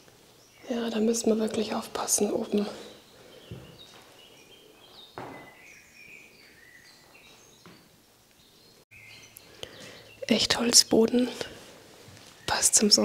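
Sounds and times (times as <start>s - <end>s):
small birds chirping: 0.0s - 13.0s
soft knock: 5.2s - 5.6s.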